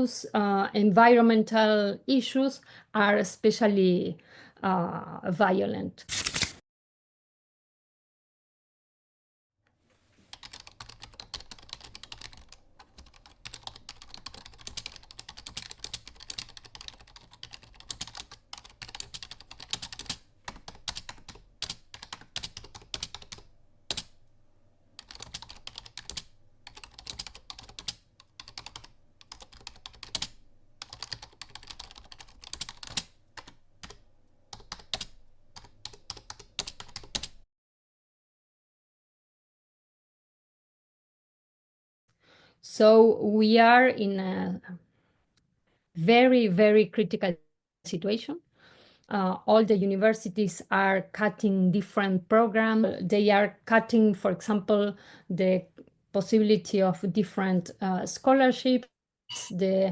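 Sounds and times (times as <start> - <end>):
keyboard typing: 10.3 - 24.2, 25.0 - 37.4.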